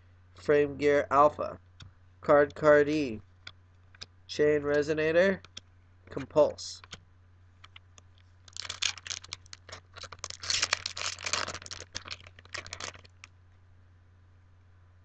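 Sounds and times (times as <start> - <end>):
foil pack tearing and crinkling: 8.5 - 13.3.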